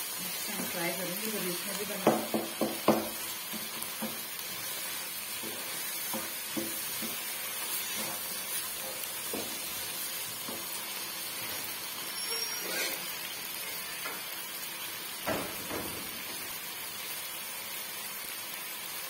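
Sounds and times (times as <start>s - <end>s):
vegetables sizzling in a wok: 0.0s - 19.0s
wooden spoon scraping a pan: 1.5s - 14.2s.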